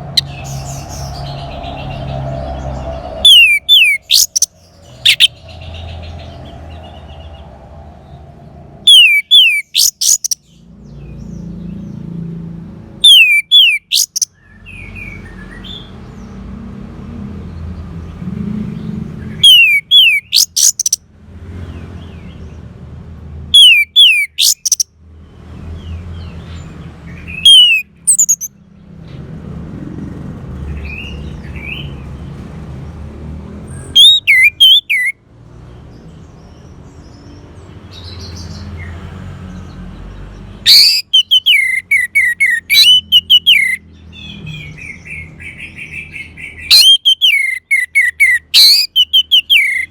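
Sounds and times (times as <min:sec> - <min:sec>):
thrush singing whistles: 0:03.2 - 0:05.4, 0:08.8 - 0:10.4, 0:13.0 - 0:15.2, 0:19.4 - 0:21.0, 0:23.6 - 0:24.8, 0:27.3 - 0:28.5, 0:33.8 - 0:35.2, 0:40.7 - 0:43.8, 0:46.7 - 0:49.9.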